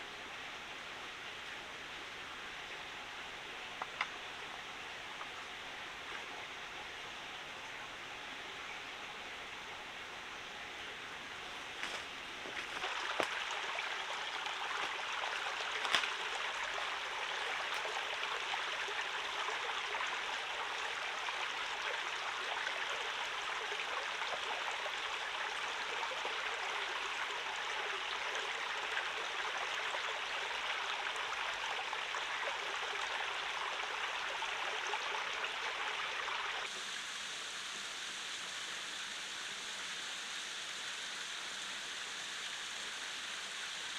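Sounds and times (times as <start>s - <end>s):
stream water flowing: 0.0s - 43.9s.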